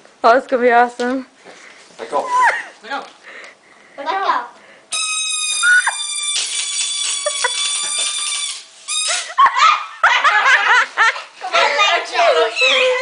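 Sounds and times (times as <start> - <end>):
balloon squealing air out: 2.2 - 2.7, 4.9 - 9.4.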